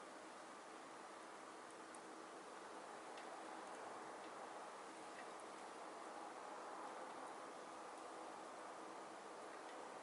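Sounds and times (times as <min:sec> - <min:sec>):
fire flames hissing: 0:00.0 - 0:10.0
wood crackling: 0:01.6 - 0:06.2.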